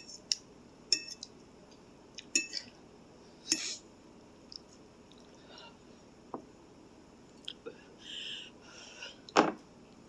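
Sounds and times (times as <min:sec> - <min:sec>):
utensil clinking against bowl: 0:00.9 - 0:01.3, 0:02.4 - 0:02.7.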